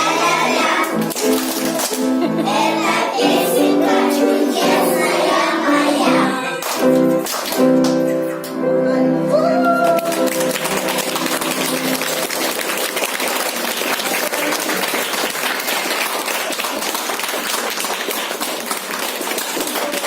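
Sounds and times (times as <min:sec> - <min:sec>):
audience applause: 0:09.8 - 0:20.0.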